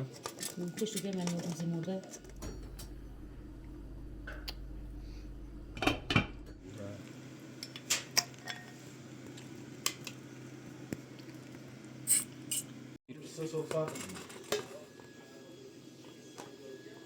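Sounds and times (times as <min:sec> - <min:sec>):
pots and utensils clinking: 0:07.6 - 0:10.2, 0:13.6 - 0:14.9.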